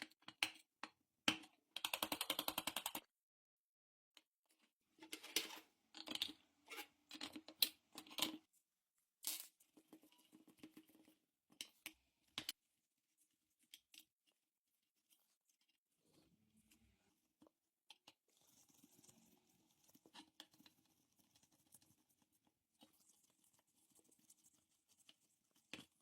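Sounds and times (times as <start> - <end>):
scraping and clicking of small parts: 4.5 - 8.5.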